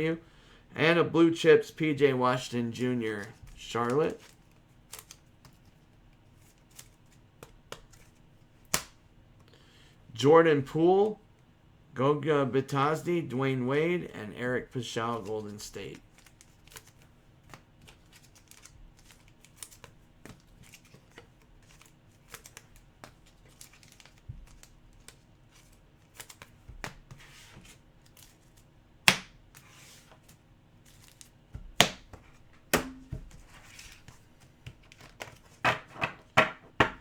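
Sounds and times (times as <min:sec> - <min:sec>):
cards rustling and clicking: 0:02.8 - 0:09.0, 0:15.0 - 0:36.3.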